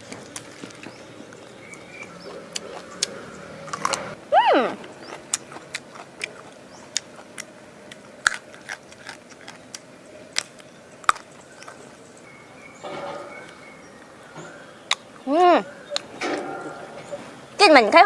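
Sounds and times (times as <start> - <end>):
person crunching while chewing: 0.0 - 4.2, 4.8 - 12.0.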